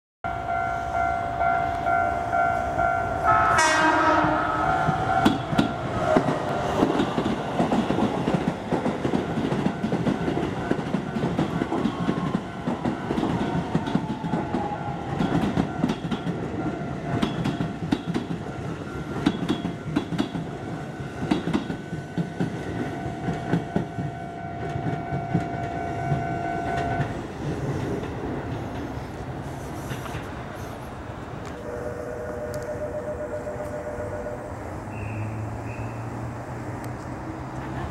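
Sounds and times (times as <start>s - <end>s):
train horn blast: 3.2s - 5.6s, 23.7s - 27.1s, 31.6s - 35.2s
train wheels clacking over rail joints: 4.8s - 20.6s, 21.2s - 29.0s
level-crossing alarm ringing: 10.9s - 17.5s, 22.0s - 27.1s, 31.6s - 34.8s.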